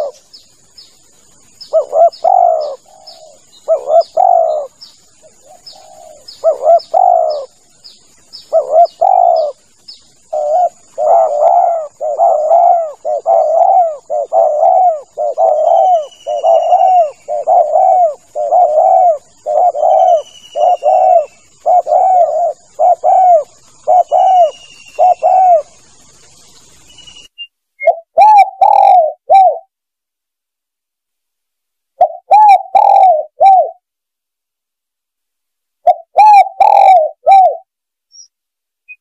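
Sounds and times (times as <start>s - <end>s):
dove cooing: 0.0s - 0.3s, 1.6s - 26.0s, 27.8s - 29.7s, 32.0s - 33.8s, 35.8s - 37.7s
high falling bird chirps: 0.0s - 29.6s, 35.8s - 39.0s.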